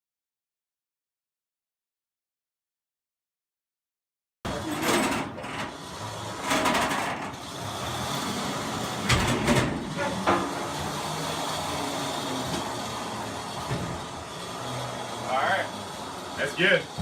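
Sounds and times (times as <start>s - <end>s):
loud clunks and rattles: 4.5s - 11.0s, 12.4s - 14.3s.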